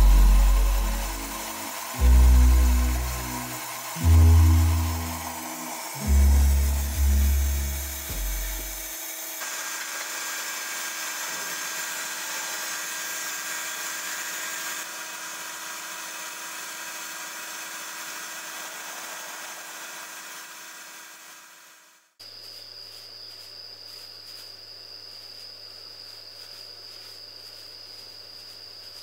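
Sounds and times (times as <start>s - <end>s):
low music notes: 0.0s - 8.9s
faint machine hum: 0.0s - 9.4s
lathe cutting wood hiss: 0.0s - 21.9s.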